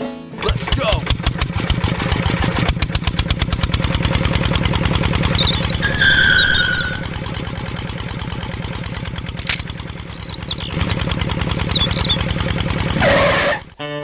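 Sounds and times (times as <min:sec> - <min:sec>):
sharp click: 0:09.4 - 0:09.8.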